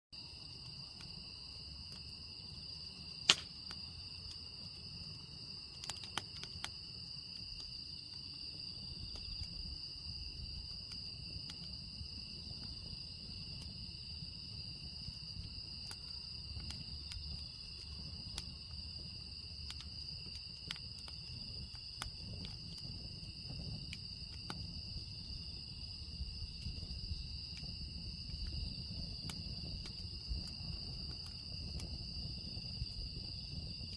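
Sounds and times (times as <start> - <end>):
firewood crackling and popping: 0.2 - 33.9
insect trill: 0.2 - 33.9.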